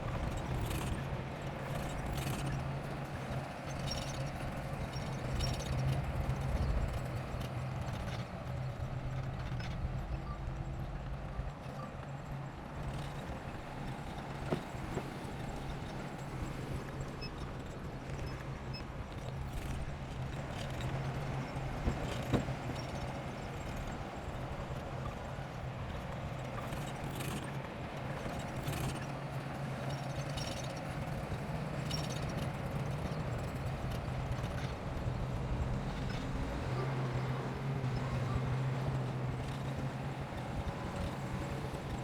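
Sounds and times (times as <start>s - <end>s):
heavy equipment engine humming: 12.8s - 42.0s.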